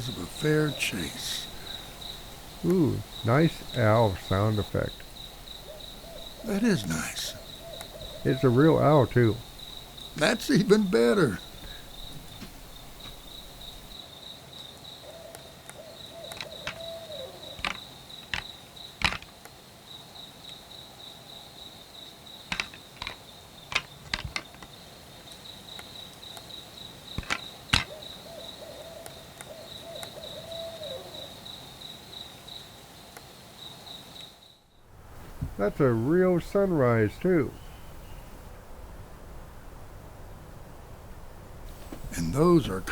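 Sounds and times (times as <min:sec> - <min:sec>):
owl calling: 0:00.0 - 0:14.0, 0:15.0 - 0:17.7, 0:27.8 - 0:31.2
night insects trilling: 0:00.0 - 0:42.9.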